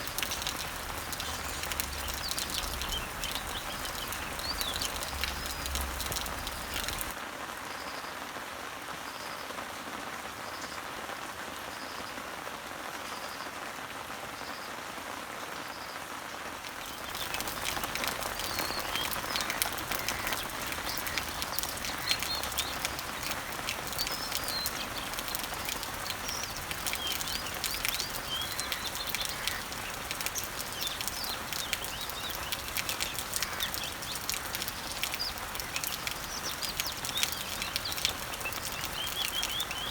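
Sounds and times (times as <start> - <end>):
birds chirping: 0.0 - 7.2, 16.7 - 39.9
rain pattering on leaves: 0.0 - 39.9.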